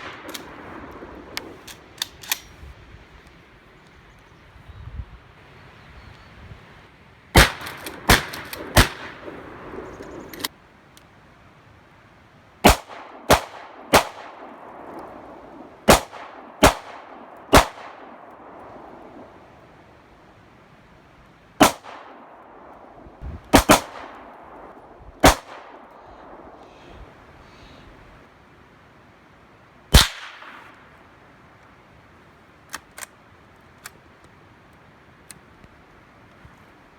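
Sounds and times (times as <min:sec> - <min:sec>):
gunshots: 0:07.4 - 0:10.0, 0:12.6 - 0:14.5, 0:15.8 - 0:18.2, 0:21.6 - 0:22.2, 0:23.5 - 0:24.3, 0:25.2 - 0:25.8, 0:29.9 - 0:30.8.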